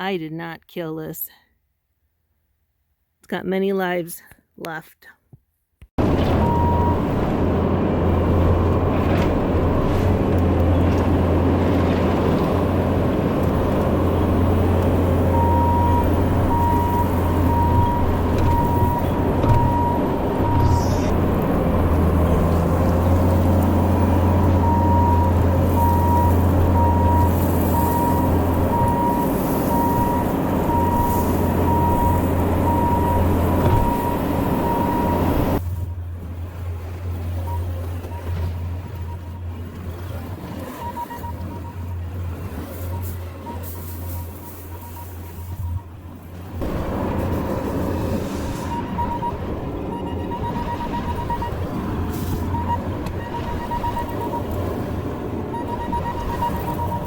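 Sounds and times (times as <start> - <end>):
diesel engine under load: 6.0 - 57.0
reverse warning alarm beeping: 6.3 - 7.2, 13.4 - 22.6, 23.3 - 36.1, 37.3 - 46.2, 47.1 - 57.0.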